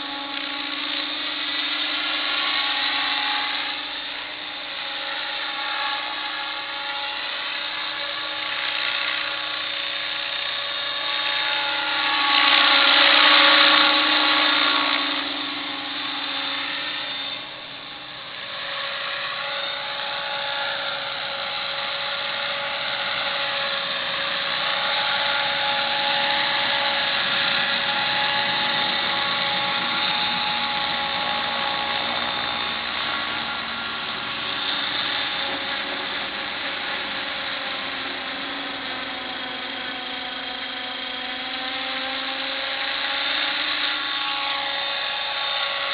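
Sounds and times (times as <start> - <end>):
helicopter rotor noise: 0.0 - 45.9
rc helicopter motor whine: 0.0 - 45.9.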